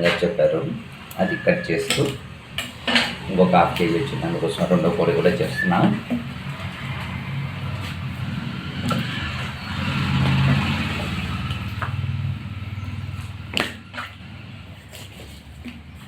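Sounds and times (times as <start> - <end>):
motorcycle engine running: 6.6 - 14.9.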